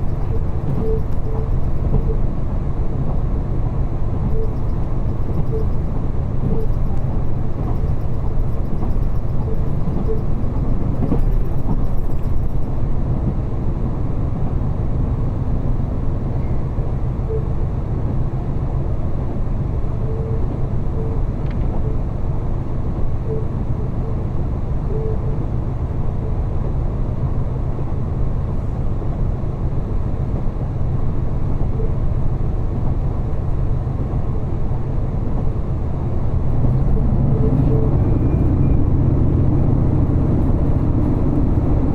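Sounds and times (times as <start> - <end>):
diesel railcar engine rumble: 0.0 - 41.9
train wheels on rails: 4.1 - 16.5.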